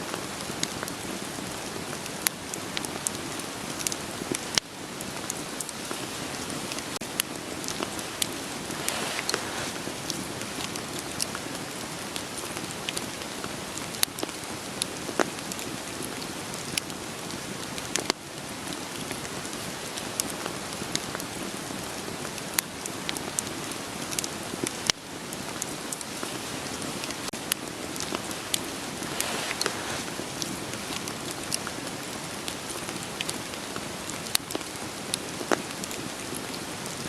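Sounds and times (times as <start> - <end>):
steady rain hiss: 0.0 - 37.0
wood fire crackling: 0.0 - 37.0.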